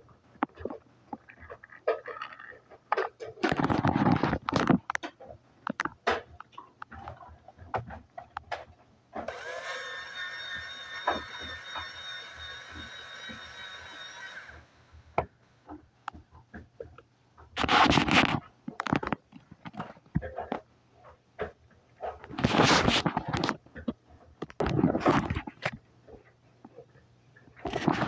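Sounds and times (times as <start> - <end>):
buzzy electronic toy tone: 9.3 - 15.0.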